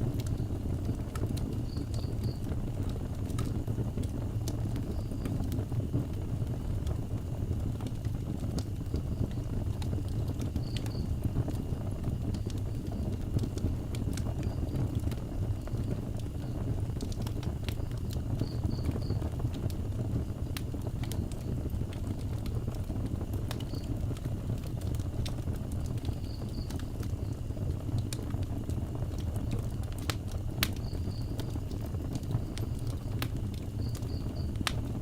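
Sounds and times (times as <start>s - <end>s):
burning wood crackling and popping: 0.0s - 35.0s
fire low rumble: 0.0s - 35.0s.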